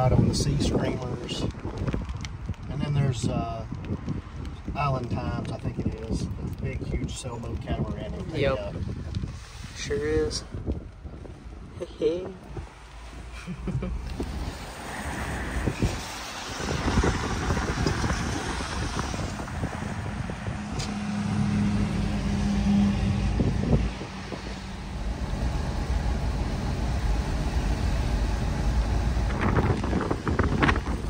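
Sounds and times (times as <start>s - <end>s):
low engine rumble: 0.0s - 31.0s
tyre and road noise: 0.0s - 31.0s.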